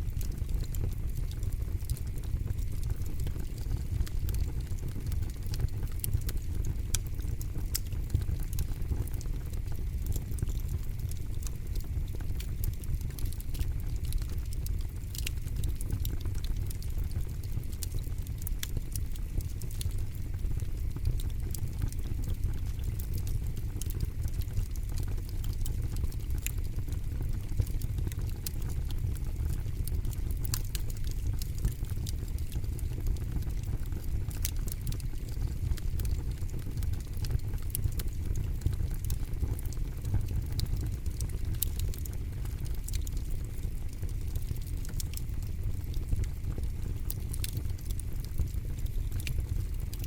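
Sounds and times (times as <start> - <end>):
campfire rumble: 0.0 - 50.0
fire crackles and pops: 0.0 - 50.0.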